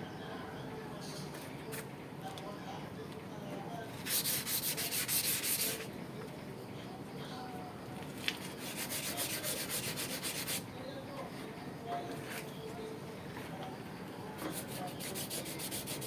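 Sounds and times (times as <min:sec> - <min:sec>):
sanding rusty sheet metal: 0:04.0 - 0:05.9, 0:08.6 - 0:10.6, 0:14.5 - 0:16.0.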